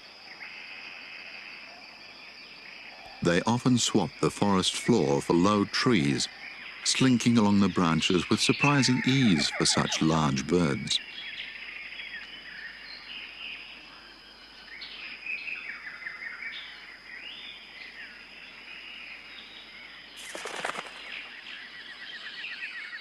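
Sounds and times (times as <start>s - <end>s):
birds chirping and calling: 2.9s - 13.3s
harsh bird call: 6.0s - 11.0s.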